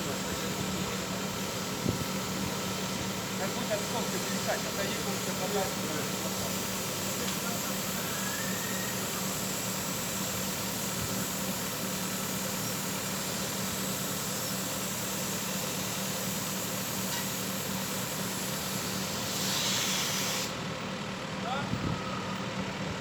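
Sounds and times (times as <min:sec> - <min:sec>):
diesel engine running: 0:00.0 - 0:23.0
brief hiss: 0:12.5 - 0:20.6.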